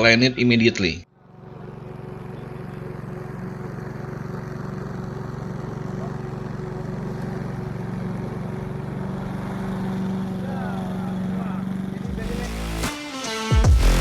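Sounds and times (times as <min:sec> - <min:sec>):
engine drone: 0:01.1 - 0:14.0.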